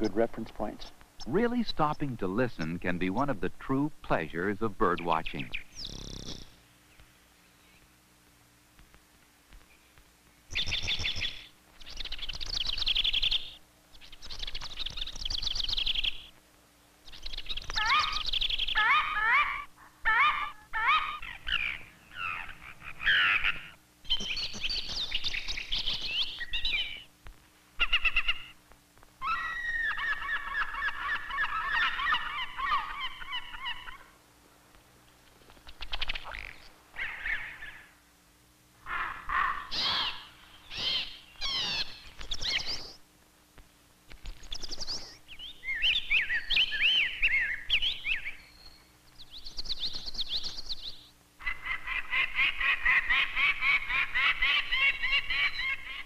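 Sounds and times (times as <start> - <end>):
wild birds singing and calling: 0.0 - 8.4, 9.2 - 34.2, 34.8 - 43.2, 44.0 - 56.0
faint steady hum: 0.0 - 56.0.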